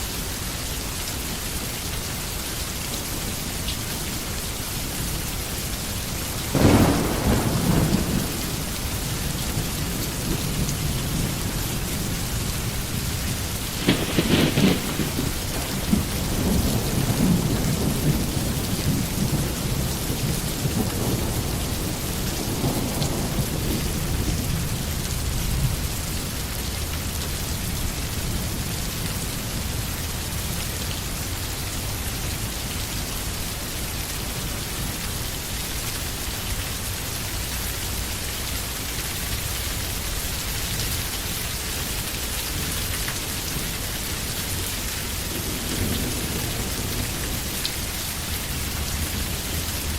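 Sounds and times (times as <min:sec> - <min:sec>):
rain falling on a forest: 0:00.0 - 0:49.9
rolling thunder rumble: 0:06.4 - 0:26.1, 0:44.5 - 0:49.9.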